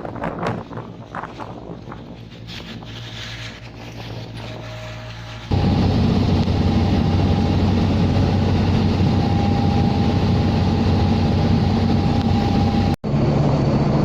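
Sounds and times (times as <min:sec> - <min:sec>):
engine running steadily: 0:03.8 - 0:14.0.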